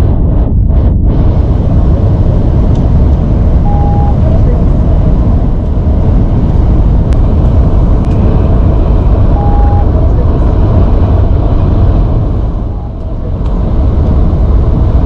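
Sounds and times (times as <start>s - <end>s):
truck engine and road rumble: 0.0s - 15.0s
short faint beep: 3.7s - 4.2s, 9.4s - 9.9s.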